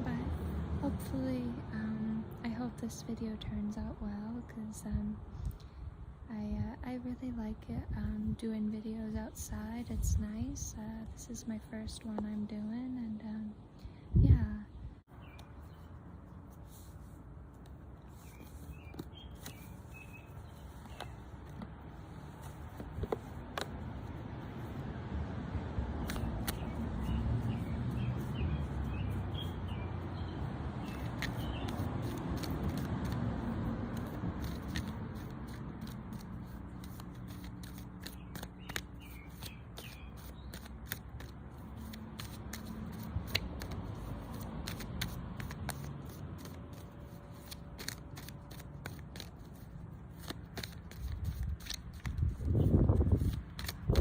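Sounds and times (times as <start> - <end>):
bird chirping: 15.1 - 16.0, 18.1 - 21.3, 26.5 - 31.8, 38.1 - 40.7
cards being shuffled: 15.4 - 24.8, 26.0 - 29.7, 30.8 - 54.0
passing car rumble: 23.8 - 36.2.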